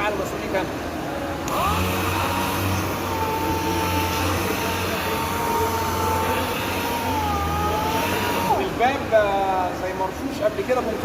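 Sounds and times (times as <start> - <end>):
orbital sander whining: 1.5 - 9.4.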